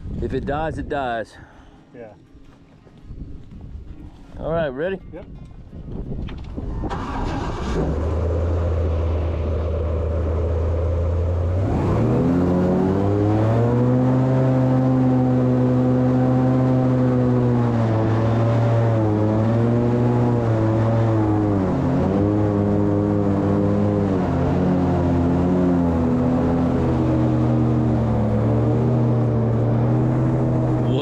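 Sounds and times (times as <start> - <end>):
airboat engine and propeller revving: 6.7 - 31.0.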